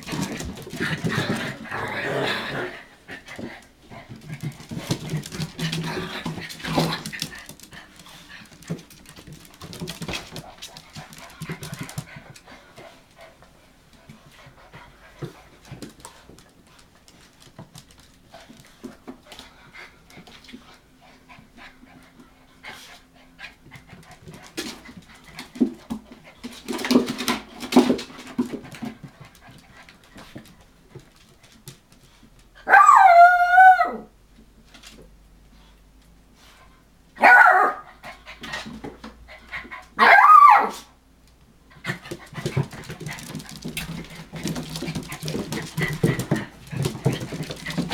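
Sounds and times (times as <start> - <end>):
puppies scuffling: 0.0 - 32.6, 41.7 - 47.9
puppy yelping barks: 32.6 - 34.1, 37.2 - 37.9, 40.0 - 40.9.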